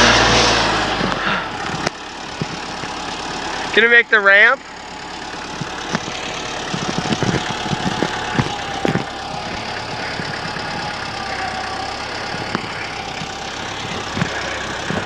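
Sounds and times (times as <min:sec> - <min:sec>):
tractor engine running: 0:00.0 - 0:15.0
knocks and clunks: 0:05.4 - 0:15.0.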